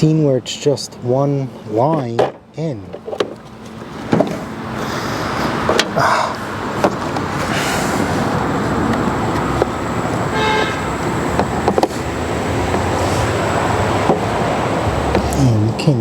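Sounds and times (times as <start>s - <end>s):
passing vehicle rushing: 3.5s - 16.0s.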